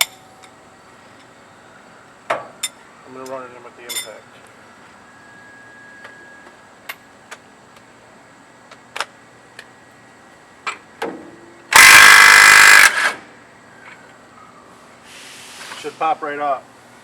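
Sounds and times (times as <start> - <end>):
impact wrench hammering: 11.8 - 13.2.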